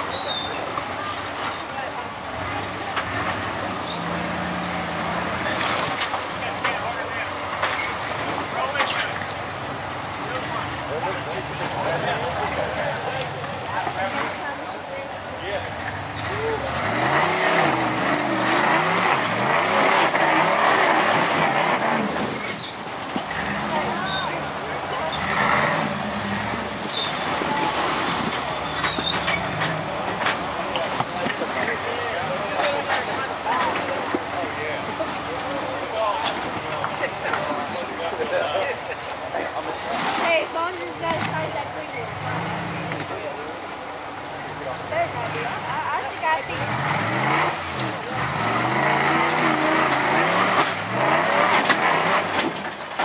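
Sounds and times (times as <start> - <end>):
faint high squeaks: 0.0 - 0.6, 28.0 - 29.6
truck engine running: 0.0 - 38.2.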